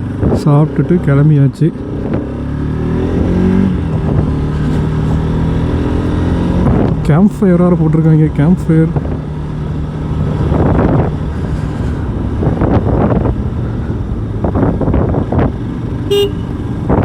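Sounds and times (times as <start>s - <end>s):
motorcycle engine running: 1.8s - 17.0s
wind buffeting microphone: 1.9s - 7.0s, 8.9s - 17.0s.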